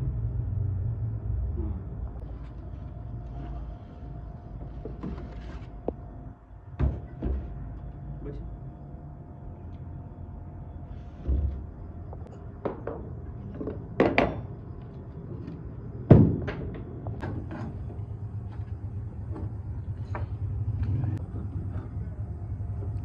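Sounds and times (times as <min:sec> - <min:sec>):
steady low hum: 0:00.0 - 0:23.0
irregular knocks and thuds: 0:11.1 - 0:14.5, 0:16.1 - 0:17.5.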